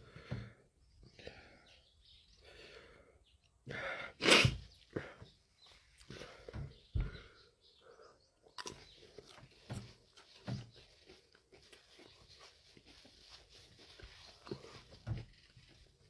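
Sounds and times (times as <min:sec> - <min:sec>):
close-up chewing: 0:08.4 - 0:16.0.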